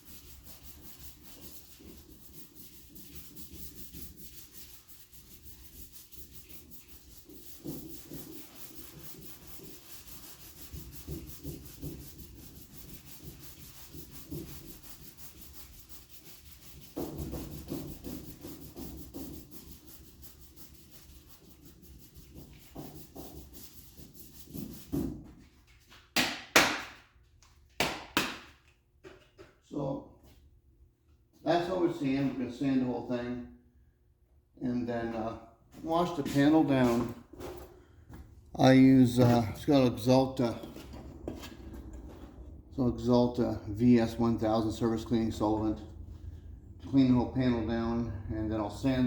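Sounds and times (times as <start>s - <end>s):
sandpaper sanding a panel: 0.0s - 25.4s, 38.6s - 40.6s.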